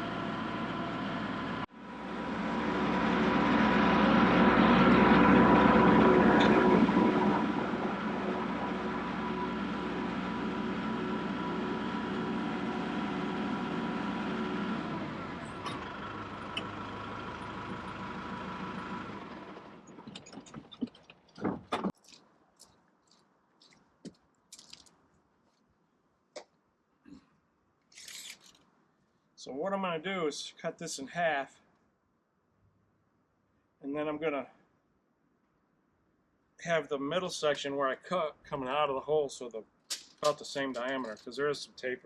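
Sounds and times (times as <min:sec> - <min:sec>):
tractor diesel engine running: 0:00.0 - 0:21.9.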